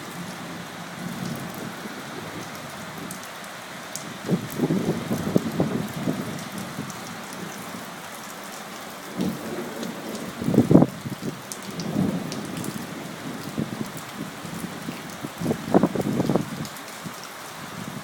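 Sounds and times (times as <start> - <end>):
steady rain hiss: 0.0 - 18.0
rumbles of thunder: 9.1 - 13.9.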